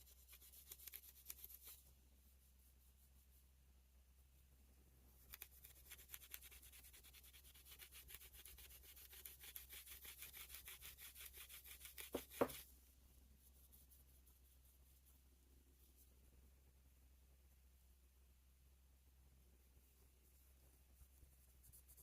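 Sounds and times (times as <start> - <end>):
rubbing strokes cleaning a knife: 0.0 - 1.8, 5.3 - 12.7.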